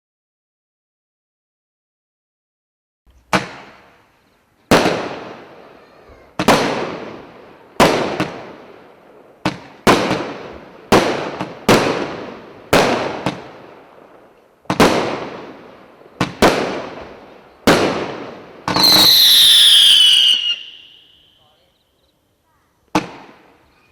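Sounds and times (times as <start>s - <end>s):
fireworks bangs: 3.2s - 4.1s, 4.7s - 21.4s, 22.9s - 23.6s.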